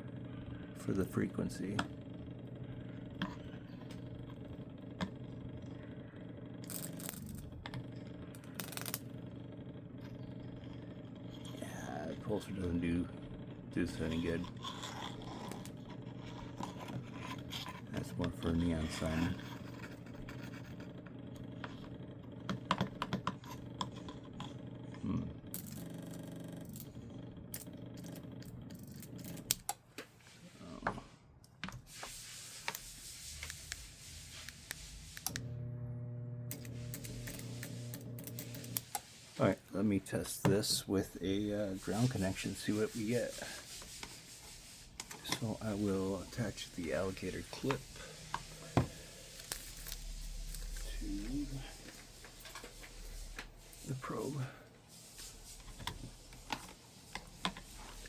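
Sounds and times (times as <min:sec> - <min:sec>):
transformer humming: 0:00.0 - 0:29.6.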